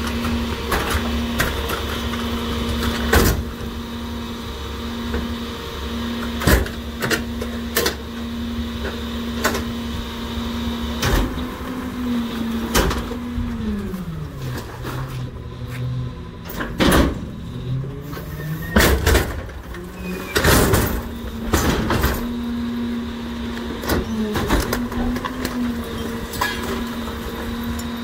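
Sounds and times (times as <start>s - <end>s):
garbage truck hydraulics humming: 0.0s - 28.0s
trash cracking and banging: 18.7s - 22.5s, 23.7s - 28.0s.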